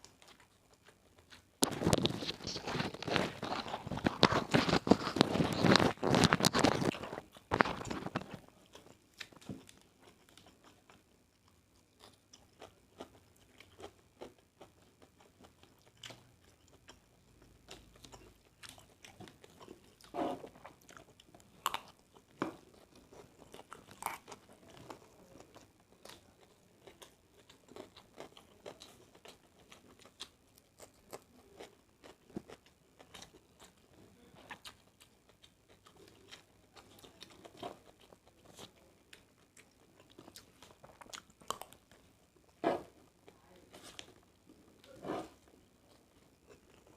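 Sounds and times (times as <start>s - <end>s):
close-up chewing: 0.0s - 46.9s
wet clicks and crunches: 1.6s - 8.4s.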